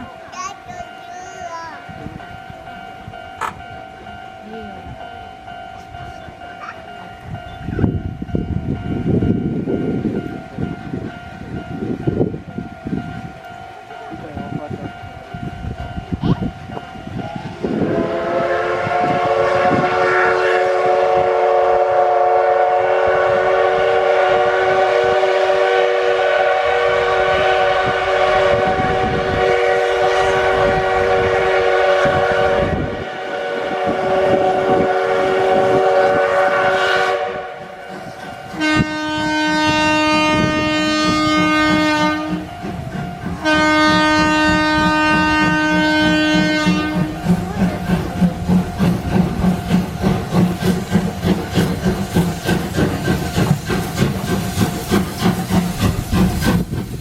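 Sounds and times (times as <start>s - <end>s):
steam locomotive whistle: 16.8s - 56.6s
electric train horn: 17.4s - 37.8s, 38.5s - 42.5s, 43.4s - 47.2s.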